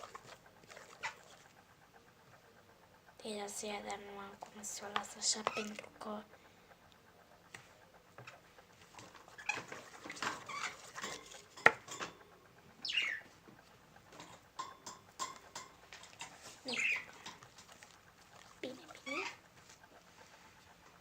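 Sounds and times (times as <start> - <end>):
utensil stirring sticky slime: 0.0 - 1.6, 3.1 - 6.4, 7.5 - 12.2, 13.4 - 21.0.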